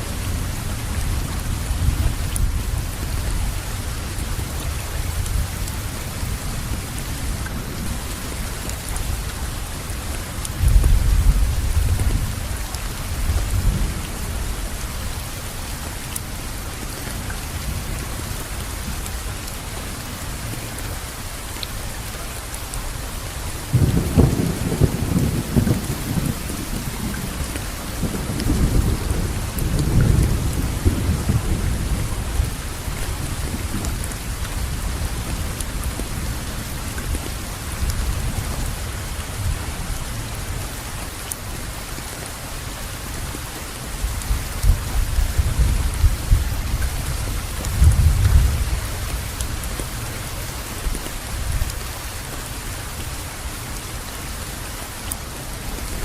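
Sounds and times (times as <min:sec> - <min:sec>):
steady rainfall: 0:00.0 - 0:56.0
rolling thunder: 0:23.7 - 0:36.1, 0:44.2 - 0:49.1.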